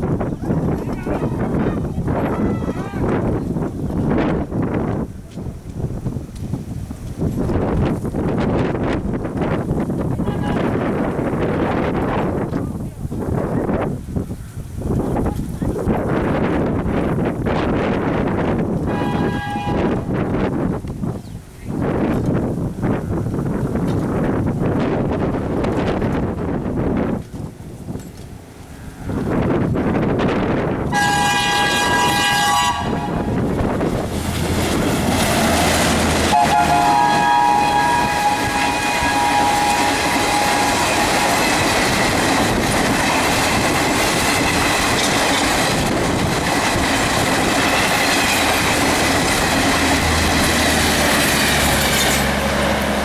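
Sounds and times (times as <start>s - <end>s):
wind buffeting microphone: 0.0s - 53.0s
locomotive horn: 10.2s - 11.1s, 18.8s - 20.1s, 30.9s - 33.8s, 35.5s - 41.7s
train wheels clattering: 27.2s - 53.0s.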